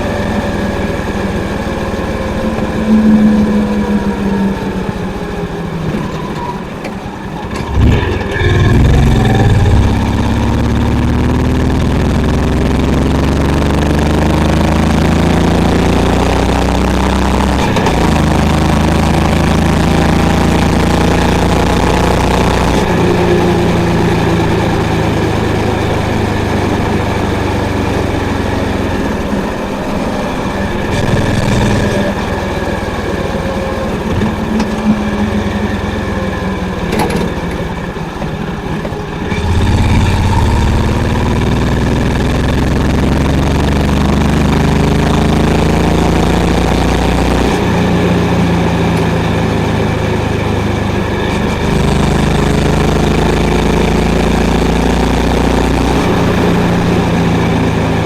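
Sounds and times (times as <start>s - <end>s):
motorcycle engine and exhaust: 0.0s - 58.0s.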